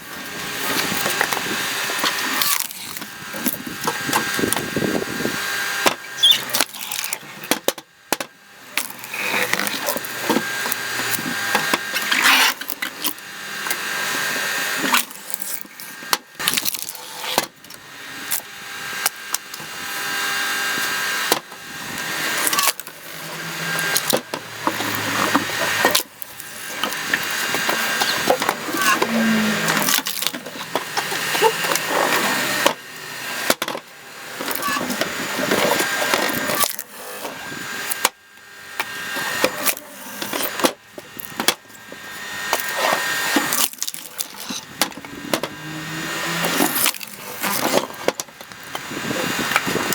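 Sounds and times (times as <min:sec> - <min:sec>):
log splitter motor boring: 0:00.0 - 0:49.9
wood creaking and cracking: 0:14.8 - 0:19.6, 0:20.8 - 0:36.9, 0:38.8 - 0:49.9.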